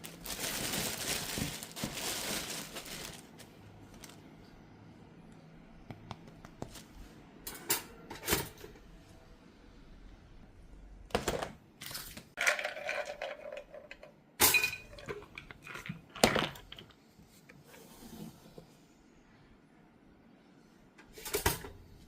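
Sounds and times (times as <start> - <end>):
dishes and utensils clattering: 7.5 - 8.8, 12.5 - 16.6.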